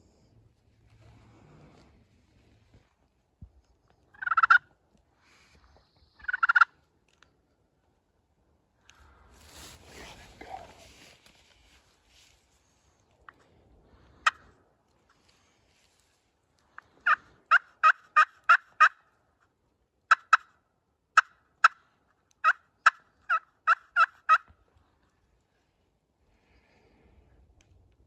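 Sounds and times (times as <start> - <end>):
turkey yelping: 4.2 - 4.6, 6.2 - 6.7, 17.0 - 19.0, 22.4 - 24.5.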